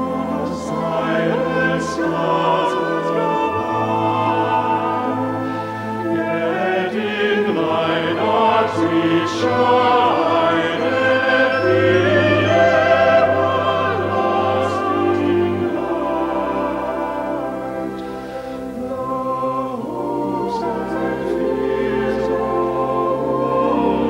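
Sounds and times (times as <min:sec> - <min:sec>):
orchestra playing: 0:00.0 - 0:18.0
choir singing: 0:00.0 - 0:24.0.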